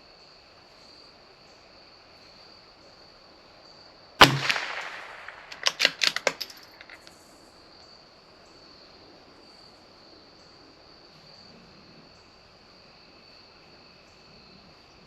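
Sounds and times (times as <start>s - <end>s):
crickets chirping: 0.0s - 15.0s
rifle shot: 4.2s - 7.0s
rifle bolt metallic clicks: 4.2s - 7.1s.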